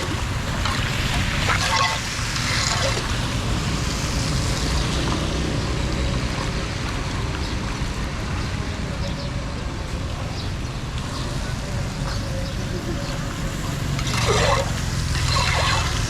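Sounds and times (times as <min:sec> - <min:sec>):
water rushing: 0:00.0 - 0:04.8, 0:12.2 - 0:16.0.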